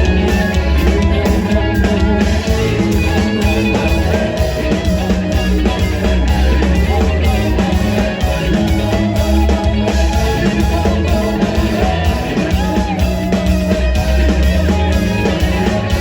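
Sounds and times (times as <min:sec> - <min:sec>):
rock band playing: 0:00.0 - 0:16.0.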